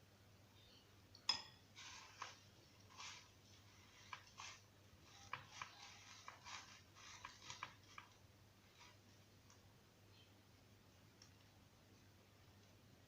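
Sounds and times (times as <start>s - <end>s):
soft rustles: 1.8s - 9.6s
faint small clicks: 11.1s - 11.6s.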